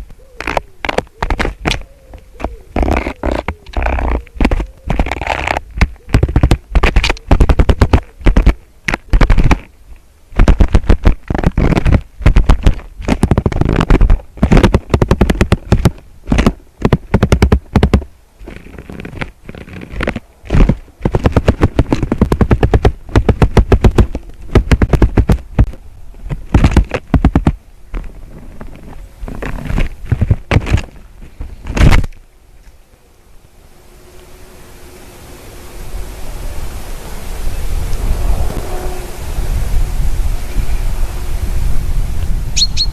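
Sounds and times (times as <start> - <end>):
rapid loud knocks and scrapes: 2.8 - 9.7, 10.4 - 32.2.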